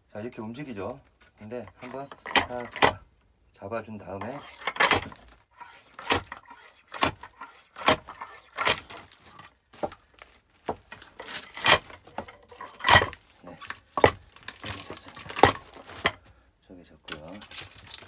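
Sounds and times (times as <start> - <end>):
axe splitting firewood: 1.8 - 3.0, 4.2 - 16.3.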